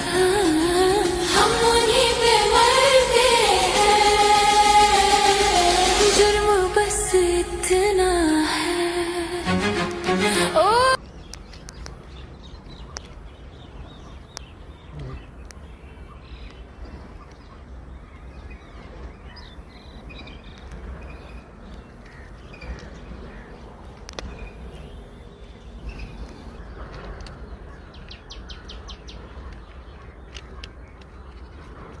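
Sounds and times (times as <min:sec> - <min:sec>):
steady low rumble: 0:00.0 - 0:11.0
birds chirping: 0:10.3 - 0:32.0.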